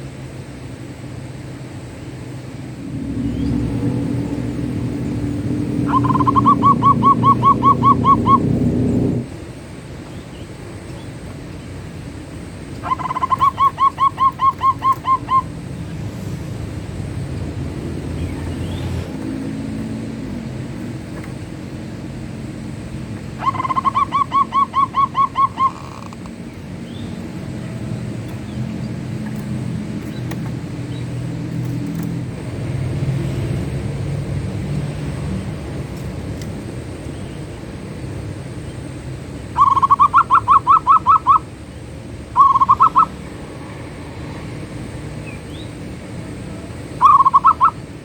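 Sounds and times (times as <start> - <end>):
low rumble: 2.0 - 9.8, 15.4 - 23.0
dove cooing: 2.8 - 9.4, 12.5 - 15.9, 17.8 - 32.9, 39.6 - 41.5, 42.4 - 43.4, 46.3 - 47.9.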